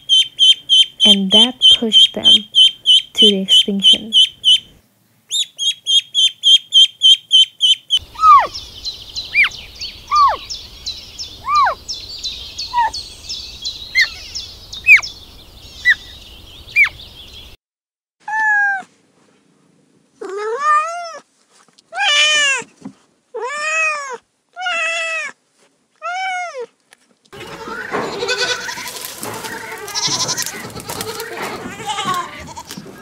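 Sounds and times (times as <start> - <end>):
birds chirping: 0.0 - 17.6, 27.4 - 33.0
ducklings peeping: 0.0 - 17.6, 27.4 - 33.0
cat meowing: 29.9 - 32.7.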